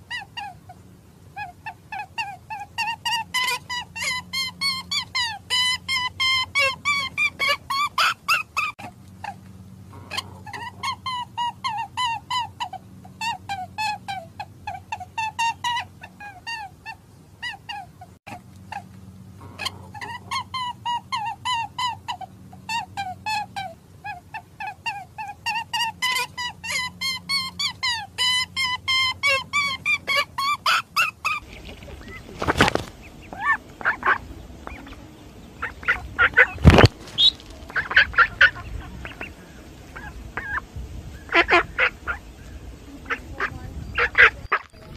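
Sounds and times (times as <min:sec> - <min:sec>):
faint low hum: 0:00.0 - 0:44.9
high chirping animal calls: 0:18.7 - 0:44.9.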